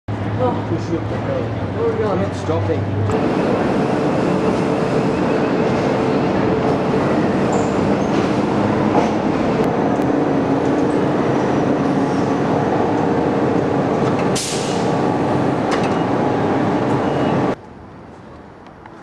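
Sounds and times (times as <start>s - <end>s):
train rumbling: 0.1s - 17.6s
brief hiss: 14.4s - 14.9s.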